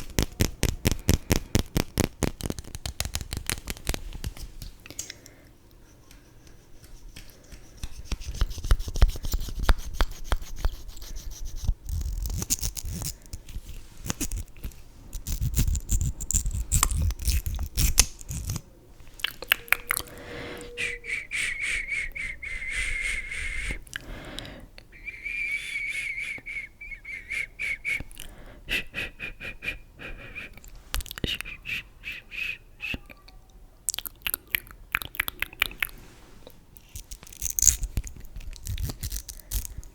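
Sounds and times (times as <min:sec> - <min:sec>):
thin high whistling tone: 0:19.4 - 0:23.8, 0:25.0 - 0:28.0.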